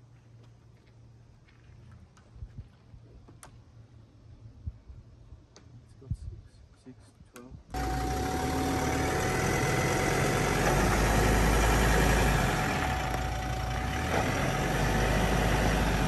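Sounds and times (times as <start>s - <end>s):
car engine running at low speed: 7.8s - 16.0s.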